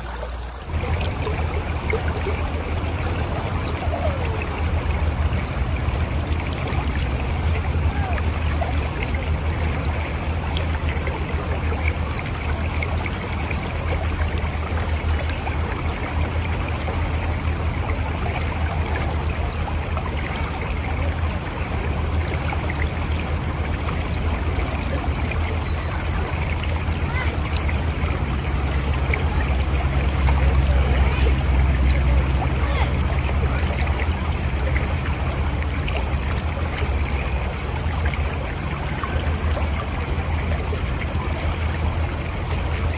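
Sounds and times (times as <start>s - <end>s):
river flowing over rocks: 0.0s - 42.9s.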